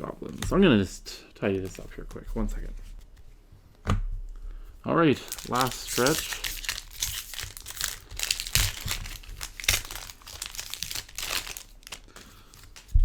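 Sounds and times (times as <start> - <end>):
wrappers crinkling: 5.1 - 13.0.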